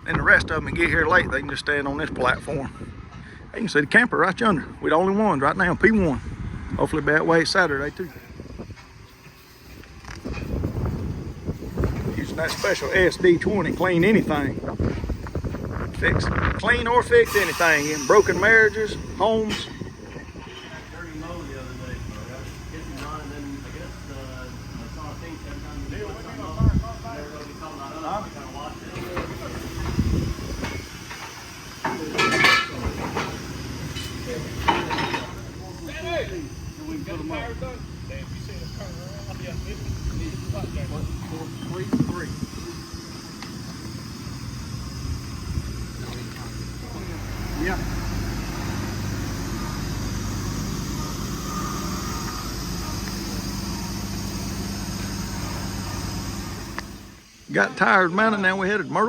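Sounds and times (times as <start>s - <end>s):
engine humming: 4.8s - 58.4s
steady hiss: 7.2s - 59.0s
loud ringing metal clang: 17.1s - 21.9s, 27.6s - 42.3s
metallic clanks and knocks: 30.6s - 35.4s.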